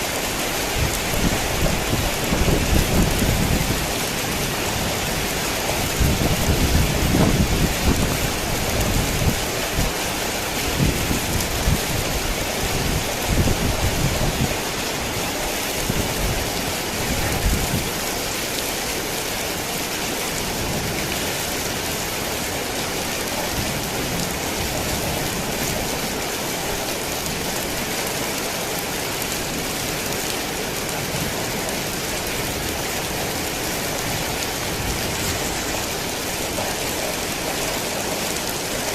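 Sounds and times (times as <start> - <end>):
heavy rain: 0.0 - 38.9
thunder rumbling: 0.1 - 9.9.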